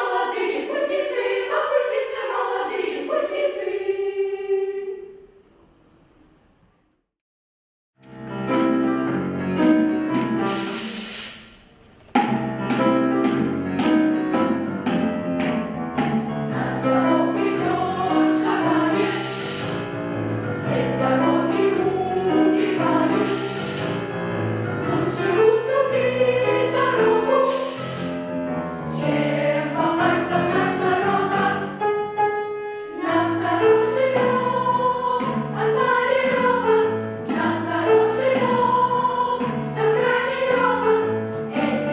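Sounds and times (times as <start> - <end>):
children's choir singing: 0.0 - 5.4, 16.0 - 28.2, 28.8 - 32.2, 32.8 - 41.9
piano accompaniment: 8.0 - 41.9.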